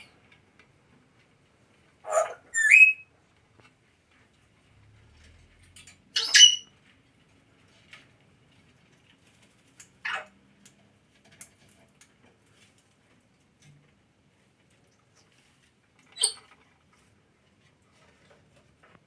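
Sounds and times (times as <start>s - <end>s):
parrot calls: 2.0s - 3.0s
faint clicks and scratches: 3.3s - 6.1s, 6.7s - 19.0s.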